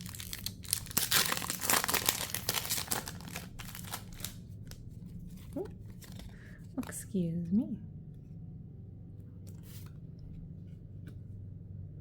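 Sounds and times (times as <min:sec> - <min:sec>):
wrappers crinkling and tearing: 0:00.0 - 0:04.8.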